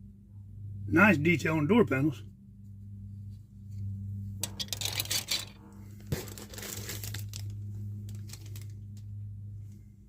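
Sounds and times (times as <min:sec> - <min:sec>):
plastic packaging crinkling: 0:06.1 - 0:08.8.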